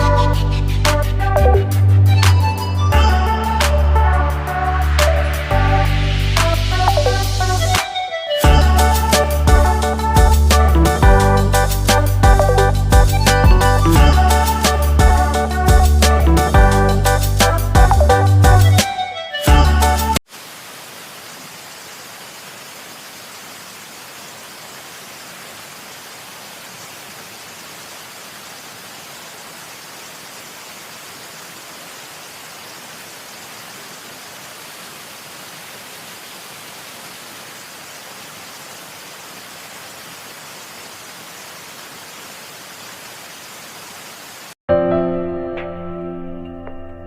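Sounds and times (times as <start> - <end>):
steady even hiss: 20.3 - 44.6.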